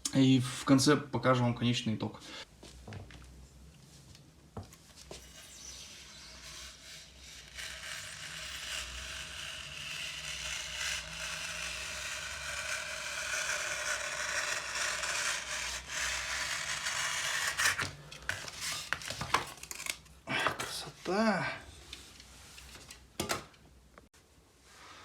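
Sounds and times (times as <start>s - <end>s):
knife cutting foam sheet: 5.0s - 20.0s.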